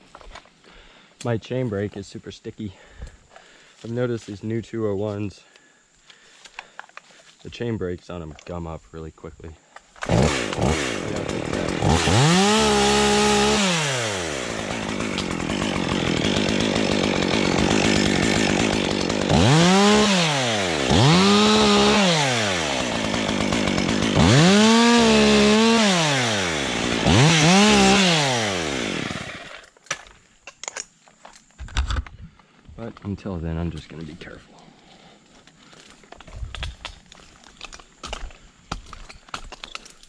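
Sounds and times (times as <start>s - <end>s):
chainsaw revving: 10.0s - 29.7s.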